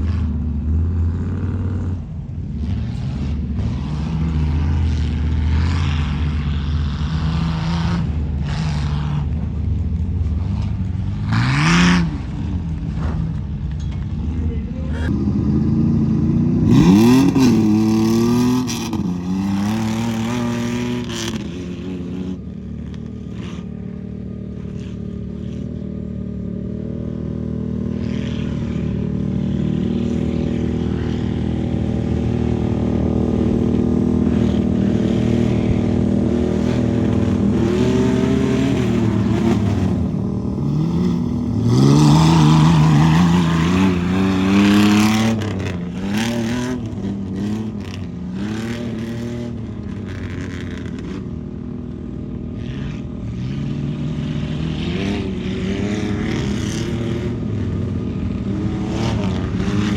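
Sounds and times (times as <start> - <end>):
truck engine revving hard: 15.0 - 22.4, 30.0 - 51.0.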